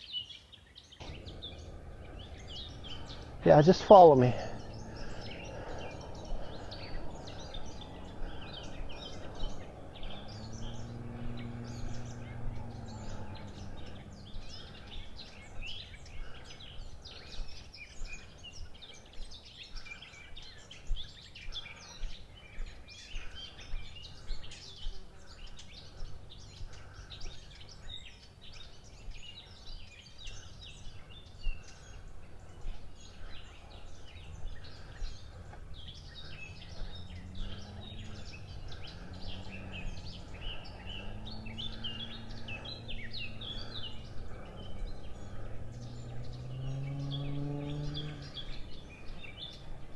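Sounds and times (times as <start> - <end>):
small birds chirping: 0.0 - 49.9
low hum: 1.0 - 17.0.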